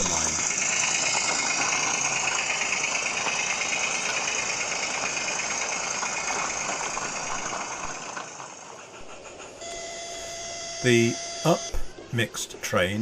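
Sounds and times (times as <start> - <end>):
model train clattering on track: 0.0 - 10.0.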